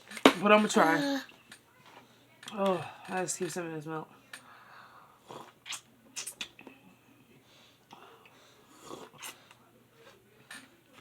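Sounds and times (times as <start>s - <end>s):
mouth clicks: 5.4s - 6.6s.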